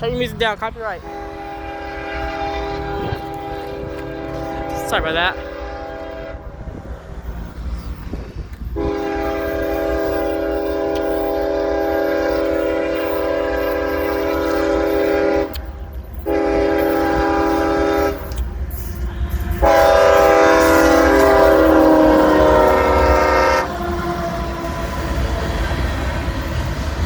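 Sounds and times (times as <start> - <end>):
train rolling by: 0.0 - 27.0
locomotive air horn blasts: 1.0 - 6.6, 8.8 - 18.4, 19.6 - 25.1.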